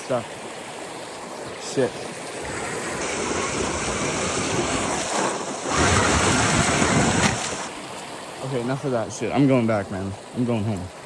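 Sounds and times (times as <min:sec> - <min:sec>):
toy truck wheels splashing water: 0:02.4 - 0:08.0.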